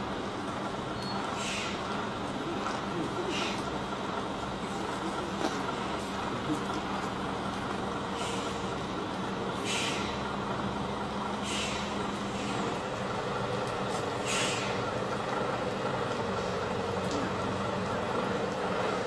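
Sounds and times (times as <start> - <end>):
truck diesel engine running: 0.0 - 19.0
short air hisses: 1.4 - 1.8, 9.6 - 10.2, 11.4 - 12.7, 14.2 - 14.8.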